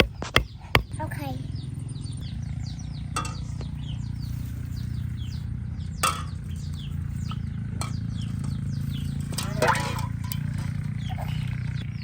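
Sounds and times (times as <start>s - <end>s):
sharp knock: 0.0s - 0.9s
small birds chirping: 0.0s - 12.0s.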